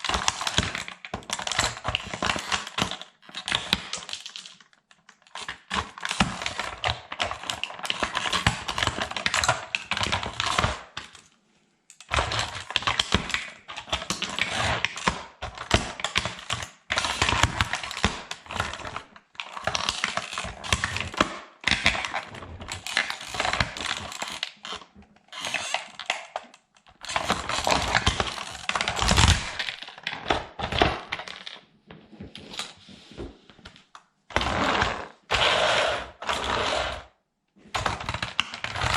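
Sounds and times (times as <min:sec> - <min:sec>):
plastic toy crushed underfoot: 0:17.0 - 0:31.6.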